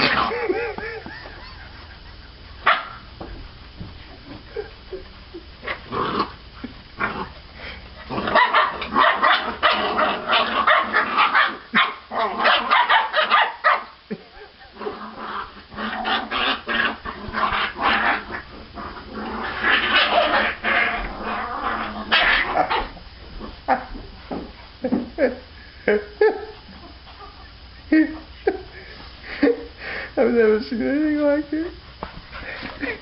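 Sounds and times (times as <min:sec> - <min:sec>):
puppies yapping and snarling: 0:00.0 - 0:03.2, 0:04.2 - 0:24.0.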